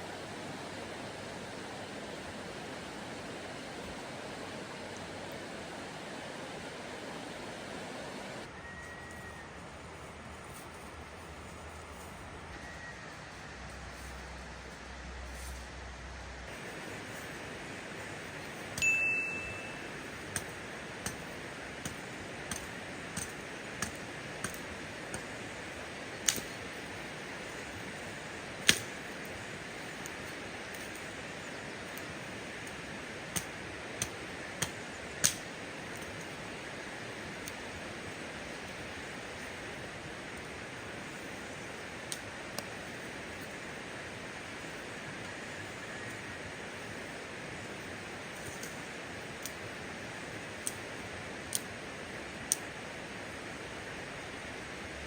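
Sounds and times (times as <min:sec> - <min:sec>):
steady hiss: 0:00.0 - 0:55.0
metallic clink: 0:18.8 - 0:20.5.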